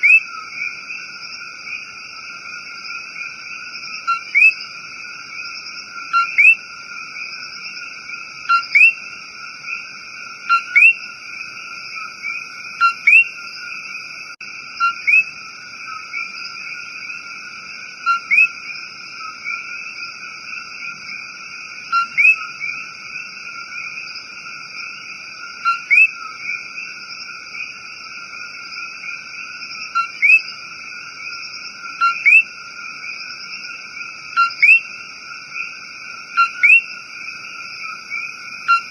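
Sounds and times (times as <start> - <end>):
two-note frog calls: 0.0 - 1.0, 2.8 - 4.7, 5.4 - 7.3, 8.4 - 14.0, 14.7 - 17.4, 18.0 - 21.2, 21.8 - 24.1, 25.6 - 27.8, 28.8 - 30.6, 31.2 - 38.9
frog chorus: 0.0 - 38.9.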